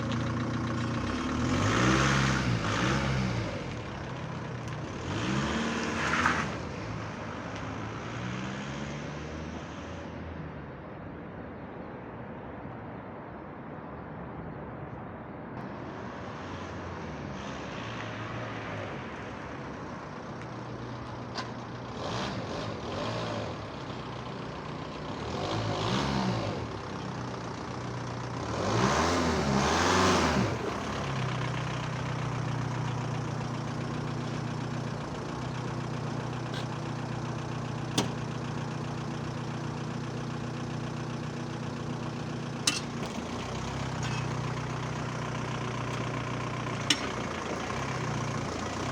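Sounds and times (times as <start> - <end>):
diesel engine revving and idling: 0.0 - 10.4, 15.6 - 48.9.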